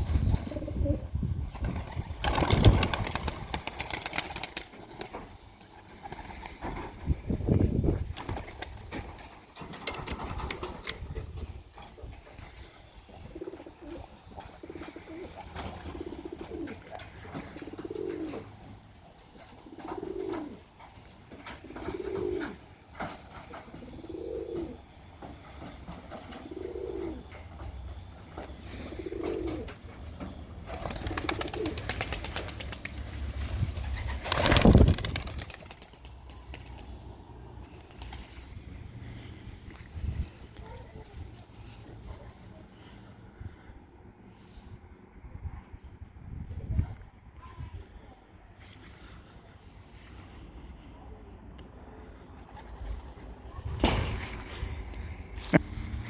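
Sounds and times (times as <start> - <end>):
pigeon cooing: 13.2 - 18.6, 21.5 - 22.6, 23.6 - 24.9, 26.3 - 27.4, 28.6 - 29.8.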